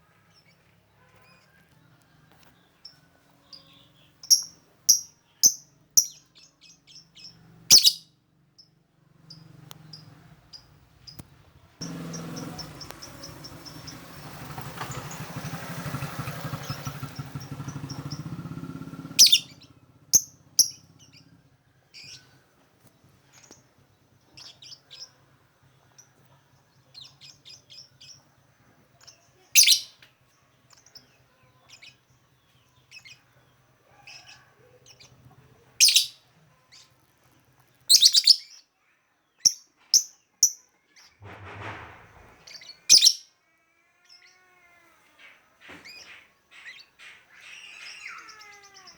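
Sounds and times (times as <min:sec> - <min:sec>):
bird chirping: 0:02.6 - 0:22.4, 0:26.8 - 0:30.1, 0:30.7 - 0:37.0, 0:37.7 - 0:41.2, 0:42.4 - 0:43.4, 0:44.0 - 0:48.9
bird chattering trills: 0:07.7 - 0:08.0, 0:19.1 - 0:20.9, 0:29.6 - 0:29.9, 0:35.8 - 0:36.2, 0:37.9 - 0:38.5, 0:42.9 - 0:43.2
broad rumbling noise: 0:41.2 - 0:42.8.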